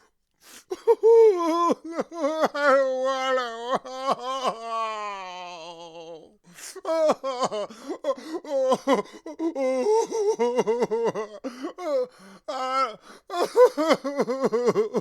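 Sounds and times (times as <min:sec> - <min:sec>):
man sobbing: 0:00.5 - 0:15.0
gasping breaths: 0:07.7 - 0:09.4, 0:11.4 - 0:13.3.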